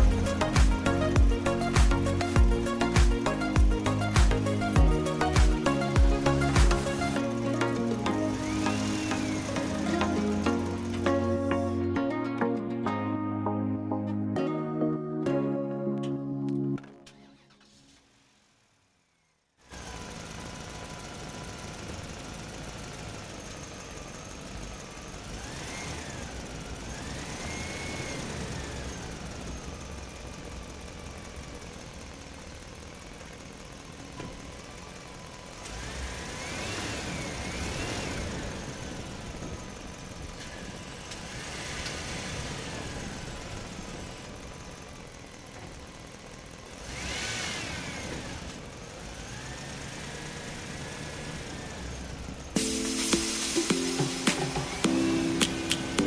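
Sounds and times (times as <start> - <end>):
vehicle engine revving: 0.0 - 11.8, 19.6 - 52.6.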